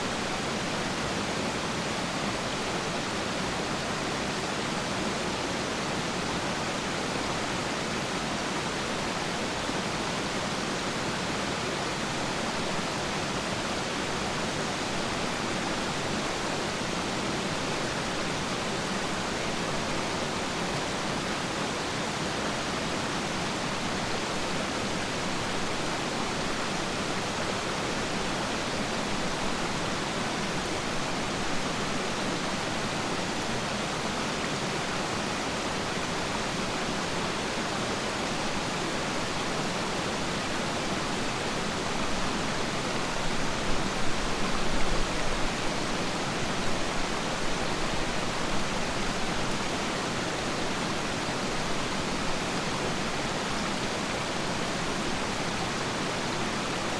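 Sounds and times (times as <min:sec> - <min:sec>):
waterfall rushing: 0:25.1 - 0:56.9.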